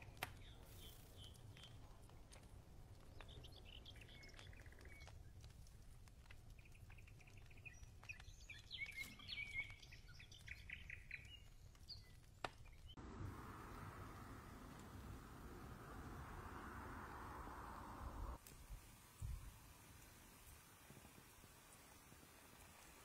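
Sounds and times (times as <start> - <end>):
birdsong chirps and trills: 3.0 - 5.3, 6.6 - 13.0.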